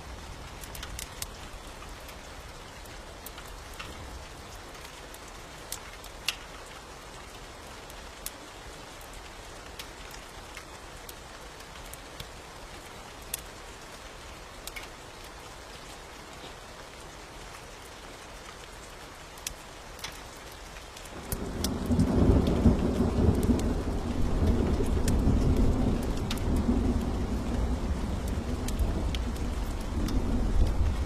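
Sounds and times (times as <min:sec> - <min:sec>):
steady rain: 0:00.0 - 0:31.0
low rumble of thunder: 0:21.2 - 0:31.0.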